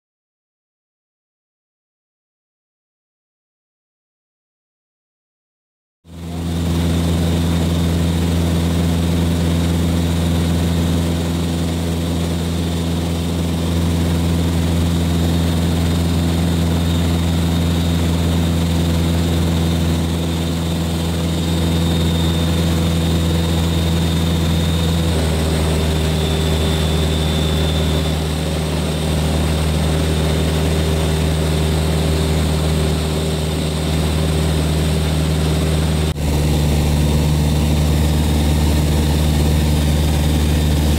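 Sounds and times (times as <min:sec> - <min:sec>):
aircraft engine and propeller droning: 0:06.1 - 0:40.9.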